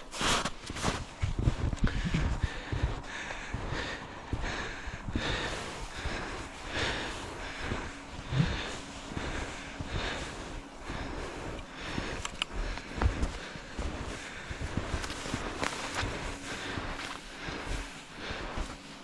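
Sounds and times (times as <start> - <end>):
skis swishing over snow: 0.0 - 1.7, 5.4 - 19.0
sharp clicks: 11.6 - 12.6.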